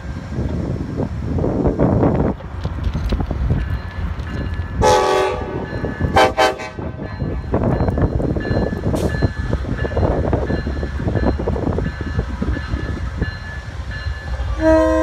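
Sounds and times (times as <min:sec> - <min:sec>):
train rumble: 0:00.0 - 0:15.0
train horn blasts: 0:04.8 - 0:07.0, 0:14.4 - 0:15.0.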